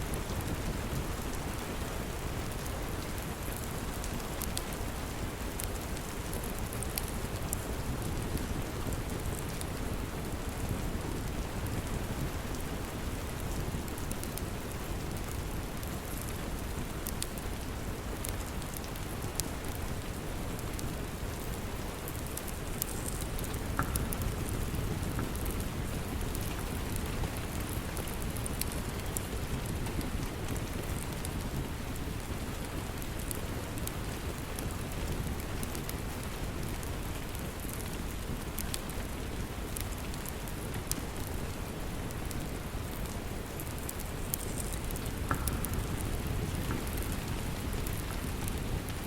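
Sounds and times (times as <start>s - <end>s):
steady rain falling: 0.0s - 49.0s
faint high ticks: 22.4s - 25.7s, 43.9s - 48.6s.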